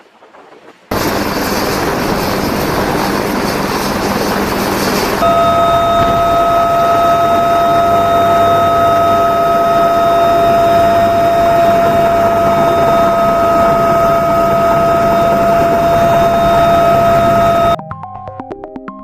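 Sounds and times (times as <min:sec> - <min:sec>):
helicopter turbine whine: 0:00.9 - 0:17.8.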